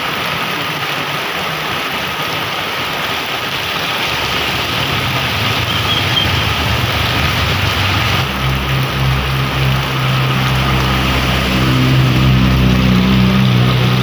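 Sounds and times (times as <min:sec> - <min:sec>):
heavy rain falling: 0:00.0 - 0:14.0
vehicle engine hum: 0:03.5 - 0:14.0.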